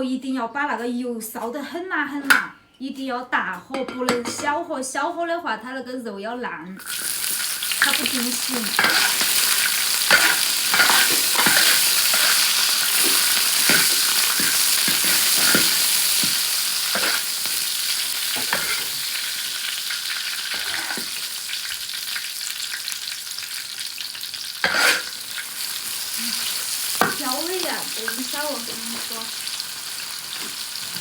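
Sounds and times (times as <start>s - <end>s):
food sizzling in hot oil: 6.8s - 31.0s
stirring scraping strokes: 24.6s - 25.1s.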